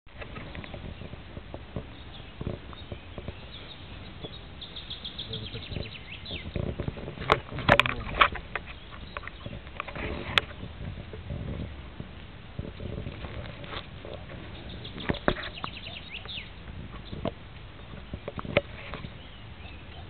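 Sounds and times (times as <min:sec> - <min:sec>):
low rustling: 0:00.1 - 0:20.0
bird chirping: 0:01.8 - 0:10.7, 0:13.3 - 0:20.0.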